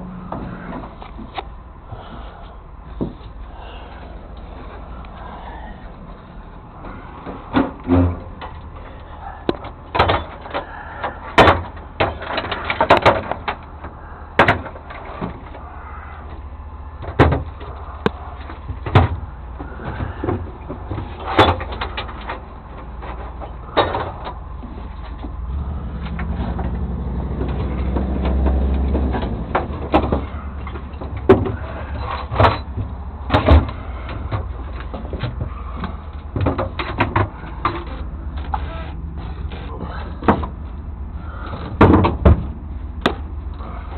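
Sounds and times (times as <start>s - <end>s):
low engine rumble: 0.0s - 43.9s
truck doors knocking and clunking: 6.8s - 15.6s, 17.0s - 24.4s, 25.1s - 37.9s, 39.8s - 43.4s.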